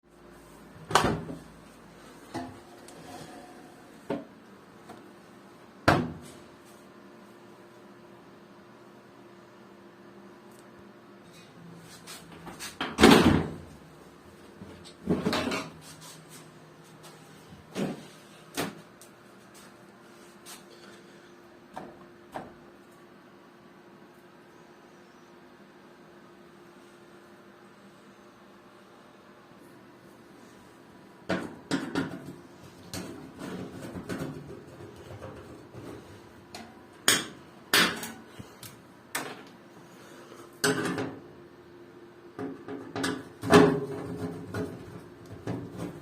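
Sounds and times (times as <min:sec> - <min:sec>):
faint steady hum: 0:13.2 - 0:46.0.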